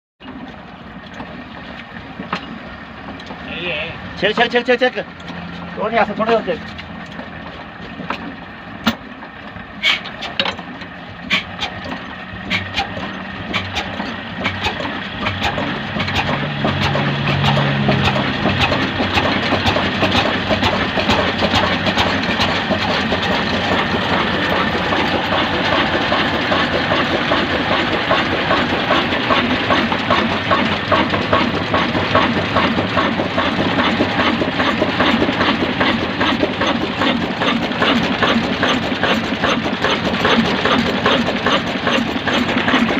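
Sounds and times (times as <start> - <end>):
slow diesel engine chuffing: 0.2 - 42.9.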